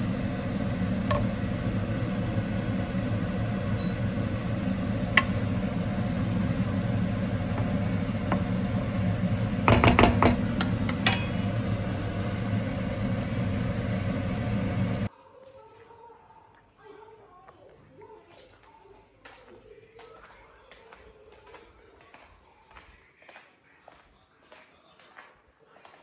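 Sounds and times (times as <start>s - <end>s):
low machine hum: 0.0s - 15.1s.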